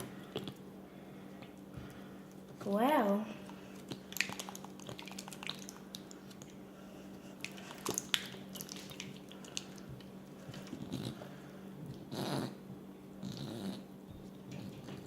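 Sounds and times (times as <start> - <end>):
slime squelching: 0.0 - 11.6.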